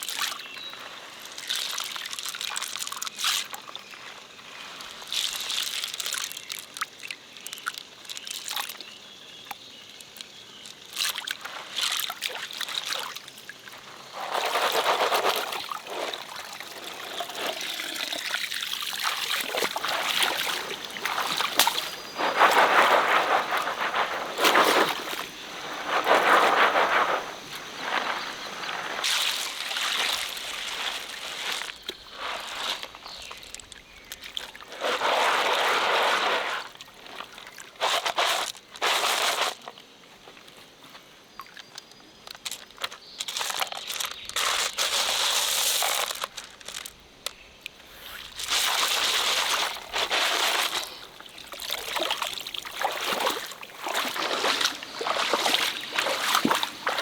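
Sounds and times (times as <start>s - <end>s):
faint stream trickling: 0.0s - 57.0s
water sloshing and splashing: 10.9s - 39.8s, 48.0s - 57.0s.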